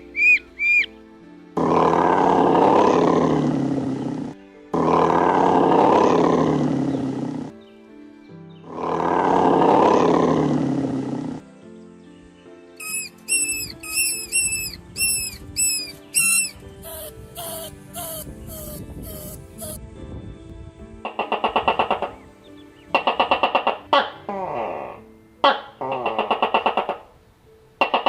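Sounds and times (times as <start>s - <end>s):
short high chirps: 0.1s - 0.9s, 12.8s - 18.7s
large animal roaring: 1.6s - 7.5s, 8.7s - 11.4s.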